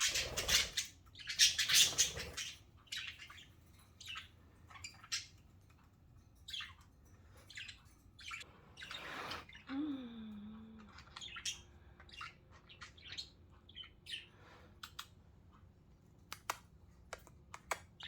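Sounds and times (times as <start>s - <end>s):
budgerigars chirping: 0.0s - 5.3s.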